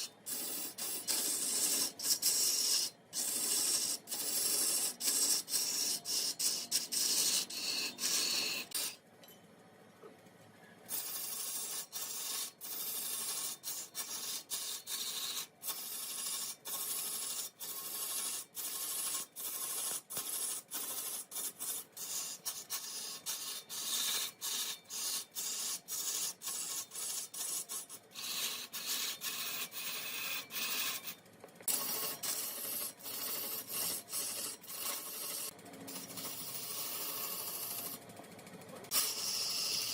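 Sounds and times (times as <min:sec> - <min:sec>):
wood scraped on lathe: 0:00.0 - 0:09.0, 0:10.9 - 0:38.0, 0:38.7 - 0:39.9.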